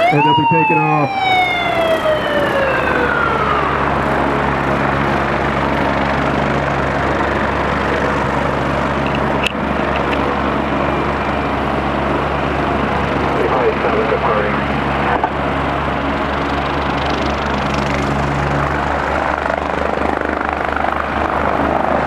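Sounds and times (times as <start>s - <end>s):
siren winding down: 0.0s - 5.6s
helicopter idling: 0.0s - 22.0s.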